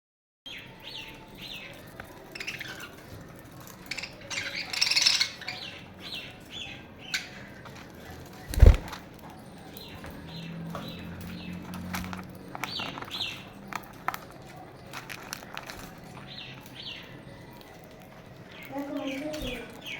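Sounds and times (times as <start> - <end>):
small parrots chirping: 1.8 - 7.5
rustling burst: 8.5 - 9.0.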